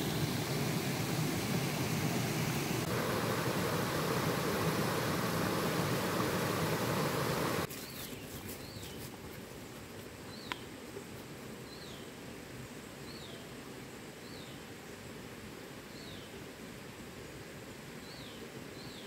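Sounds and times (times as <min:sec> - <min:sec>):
steady rushing noise: 0:00.0 - 0:07.7
outdoor ambience: 0:00.0 - 0:18.9.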